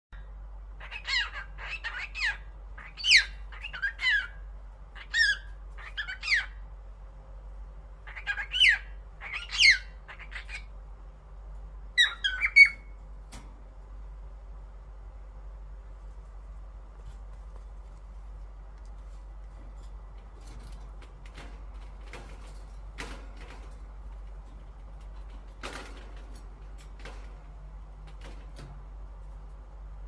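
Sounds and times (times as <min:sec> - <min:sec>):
cockatiel chirping and squawking: 0:00.8 - 0:04.4, 0:05.0 - 0:06.6, 0:08.1 - 0:10.7, 0:12.0 - 0:12.9.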